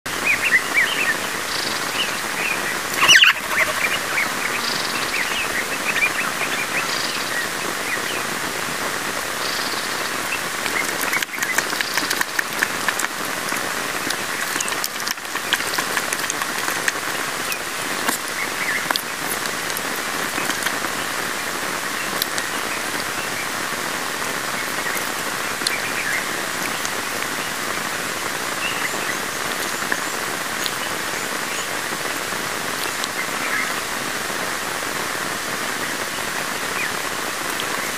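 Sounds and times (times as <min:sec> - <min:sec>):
small birds chirping: 0:00.1 - 0:08.3, 0:09.2 - 0:23.6, 0:24.3 - 0:31.9
steady hiss: 0:00.1 - 0:37.9.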